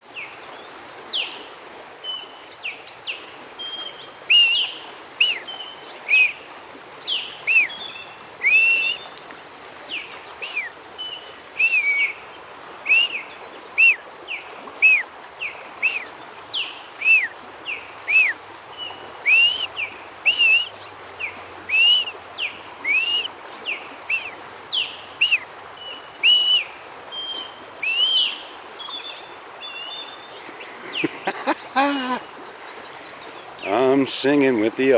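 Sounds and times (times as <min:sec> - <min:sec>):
ospreys whistled chirps: 0:02.0 - 0:06.4, 0:07.0 - 0:09.2, 0:09.9 - 0:31.1.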